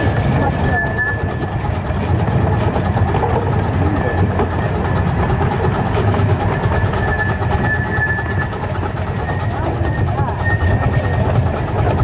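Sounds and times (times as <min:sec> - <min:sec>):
high wheel squeal: 0:00.0 - 0:01.9, 0:05.6 - 0:12.0
train wheels rumbling on track: 0:00.0 - 0:12.0.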